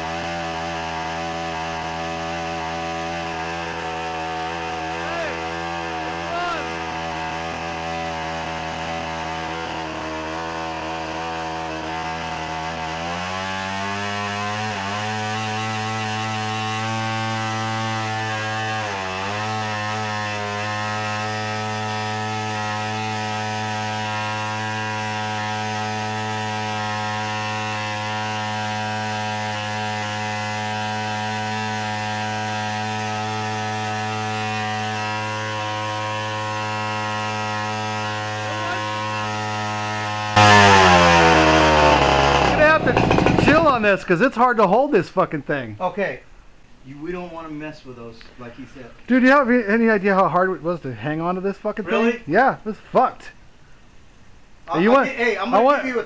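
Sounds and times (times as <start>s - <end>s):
model plane gas engine running: 0.0s - 43.8s.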